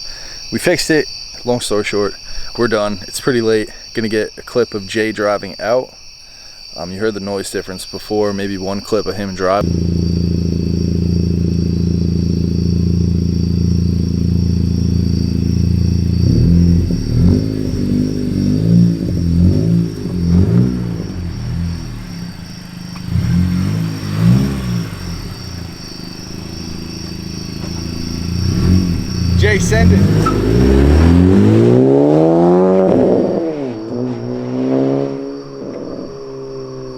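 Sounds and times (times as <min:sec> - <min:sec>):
car engine idling: 0:09.4 - 0:36.9
car engine revving: 0:09.6 - 0:36.9.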